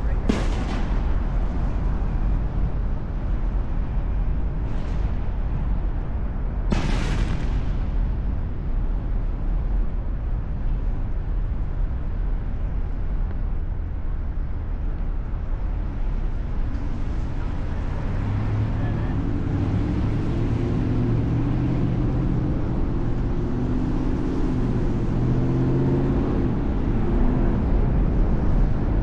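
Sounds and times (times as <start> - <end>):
steady low rumble: 0.0 - 29.0
firework bangs: 0.1 - 1.7, 6.7 - 8.3.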